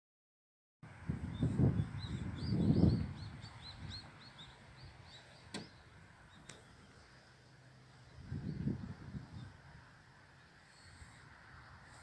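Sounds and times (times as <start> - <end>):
small bird chirping: 1.3 - 7.3.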